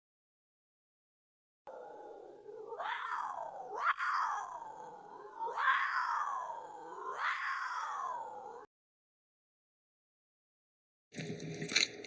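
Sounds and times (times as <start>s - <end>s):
animal calling in drawn-out cries: 1.7s - 8.7s.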